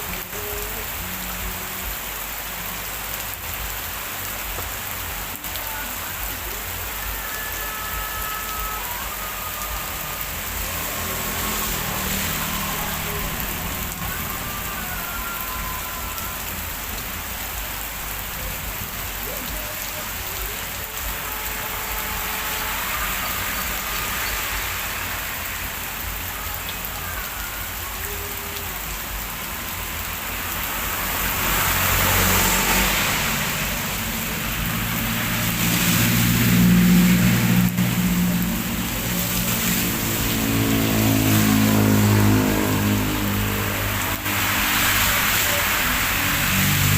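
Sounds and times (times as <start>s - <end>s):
heavy rain falling: 0.0s - 46.9s
vehicle engine hum: 0.0s - 46.9s.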